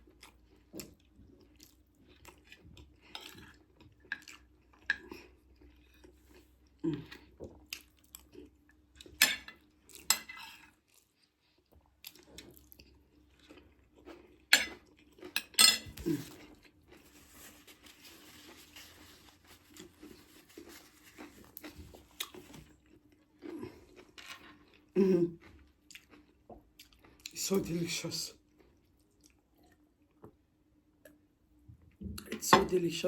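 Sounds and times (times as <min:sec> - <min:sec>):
chewing: 0:00.0 - 0:09.2, 0:09.9 - 0:27.4, 0:28.5 - 0:30.3
cutlery clinking against dish: 0:09.2 - 0:10.4, 0:14.5 - 0:16.0.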